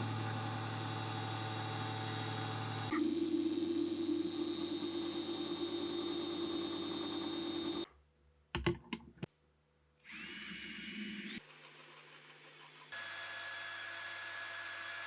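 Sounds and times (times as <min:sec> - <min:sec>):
power tool running: 0:00.0 - 0:07.9, 0:10.1 - 0:15.0
quiet machine sound: 0:00.0 - 0:07.9.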